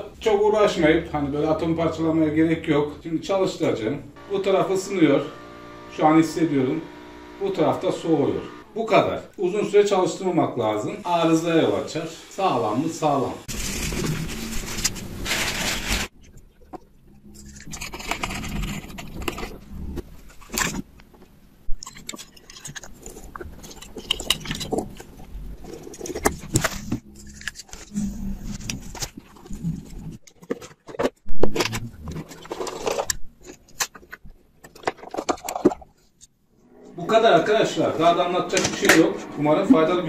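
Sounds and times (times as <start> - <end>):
clicks and scrapes of small parts: 13.6 - 36.4.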